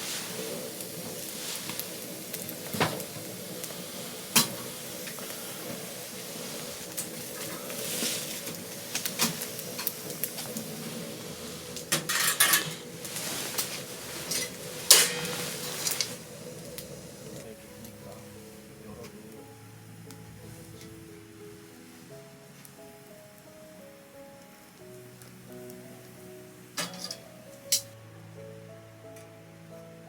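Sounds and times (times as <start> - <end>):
food sizzling: 0.0 - 30.0
cutlery clinking on dishes: 11.9 - 12.9, 14.3 - 16.1, 26.8 - 28.0.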